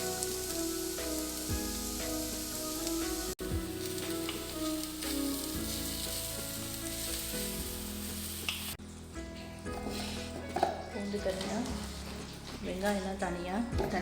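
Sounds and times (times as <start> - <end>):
food sizzling in a pan: 0.0 - 8.8.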